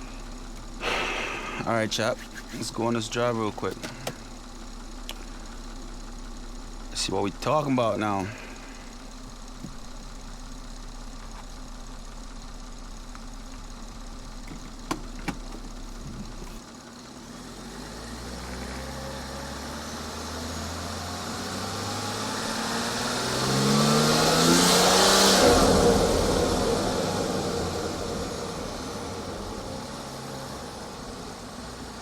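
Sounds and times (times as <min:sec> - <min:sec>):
car engine idling and accelerating: 0:00.0 - 0:32.0
intake and turbo whoosh: 0:22.5 - 0:31.3.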